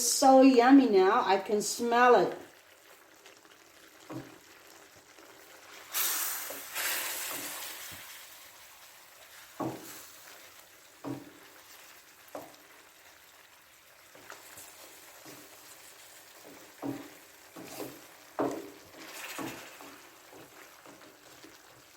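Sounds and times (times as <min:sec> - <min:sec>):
food sizzling in a pan: 0:00.0 - 0:21.9
knocks against pan: 0:16.8 - 0:18.8.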